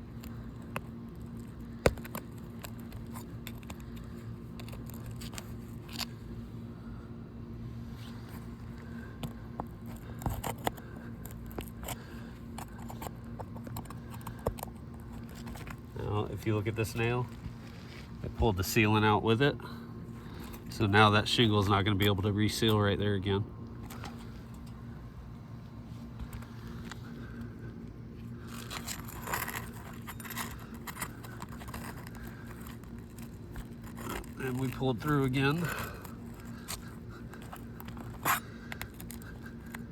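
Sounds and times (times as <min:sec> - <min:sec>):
hand tool clicking and scraping: 0:00.0 - 0:06.2, 0:09.2 - 0:15.8, 0:28.4 - 0:39.9
steady low hum: 0:00.0 - 0:39.9.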